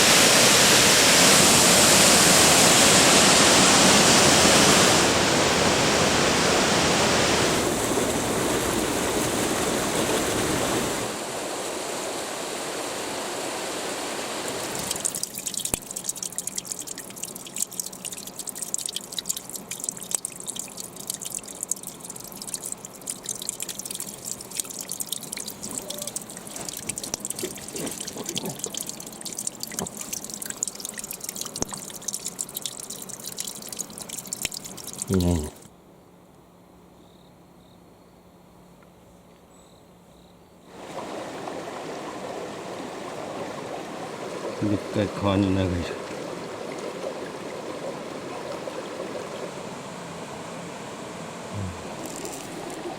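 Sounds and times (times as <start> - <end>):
water trickling and dripping: 14.5 - 35.7, 40.7 - 52.9.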